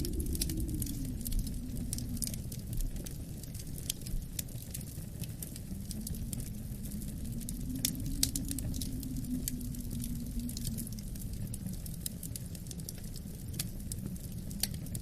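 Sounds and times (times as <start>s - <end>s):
low wind rumble with howl: 0.0s - 15.0s
wood fire crackling and popping: 0.0s - 15.0s.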